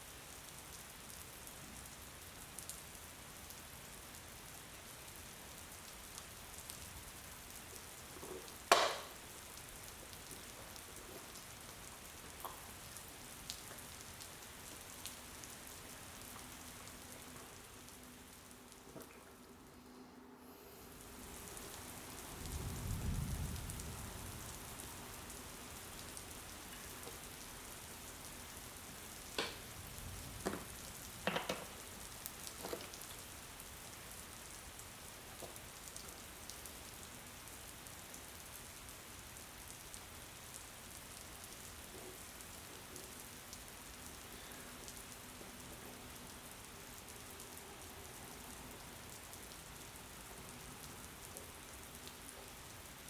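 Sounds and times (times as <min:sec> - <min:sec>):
steady rain hiss: 0:00.0 - 0:53.0
sharp taps or knocks: 0:08.7 - 0:09.1.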